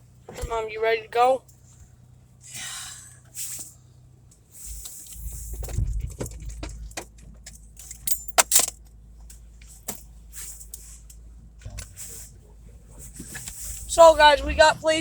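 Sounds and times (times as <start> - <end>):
steady low rumble: 0.0 - 15.0
keys jangling: 7.5 - 8.7.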